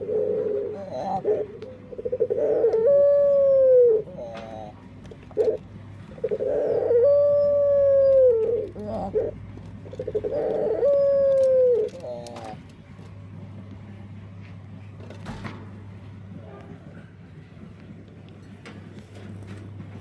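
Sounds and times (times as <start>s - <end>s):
dove cooing: 0.0s - 12.9s.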